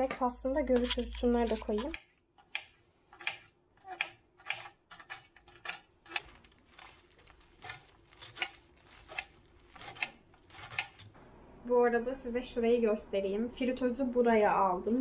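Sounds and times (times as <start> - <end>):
household items clicking and tapping: 0.0 - 11.2.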